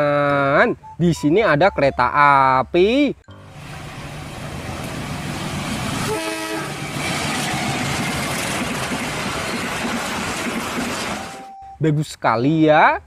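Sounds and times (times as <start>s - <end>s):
diesel train passing: 3.3s - 11.6s
train horn blast: 6.0s - 7.0s.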